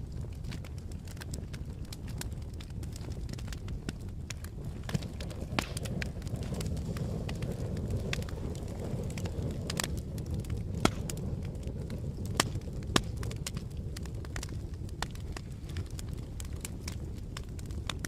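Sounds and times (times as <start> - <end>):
campfire flames rumbling: 0.0 - 18.0
wood crackling and popping: 0.0 - 18.0.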